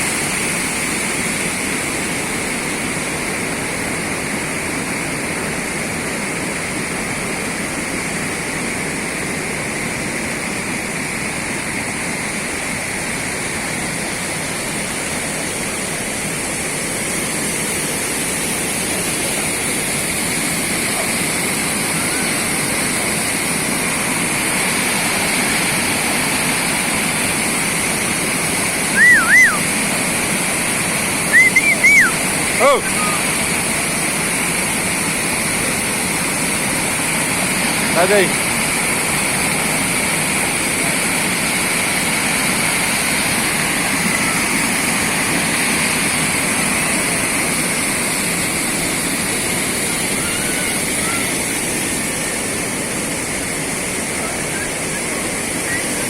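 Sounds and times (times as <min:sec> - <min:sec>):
waterfall rushing: 0:00.0 - 0:56.0
short arching chirps: 0:29.0 - 0:29.6, 0:31.3 - 0:32.2.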